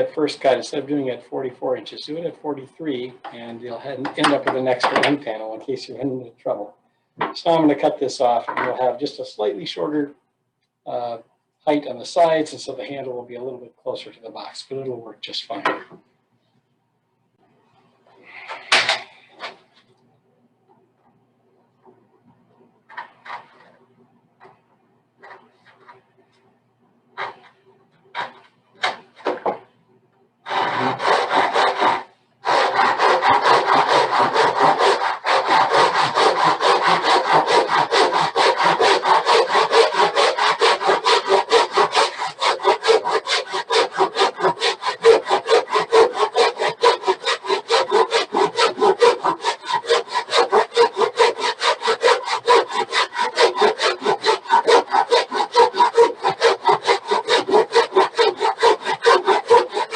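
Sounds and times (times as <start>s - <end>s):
hand saw cutting wood: 0.0s - 1.2s, 3.0s - 6.1s, 23.0s - 23.7s, 27.2s - 27.5s, 28.1s - 29.6s, 30.4s - 59.9s.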